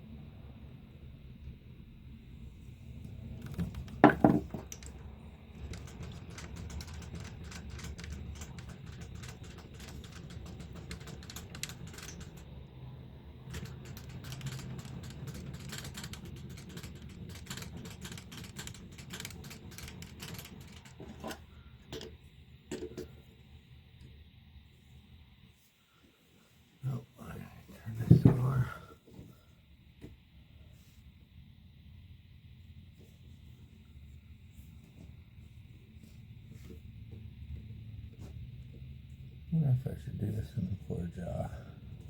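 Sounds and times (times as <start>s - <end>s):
knocks: 3.5s - 4.8s.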